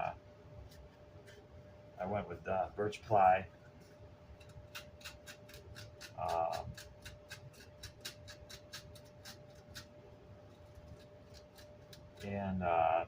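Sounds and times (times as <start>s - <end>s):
scraping strokes on cloth: 3.7s - 12.5s.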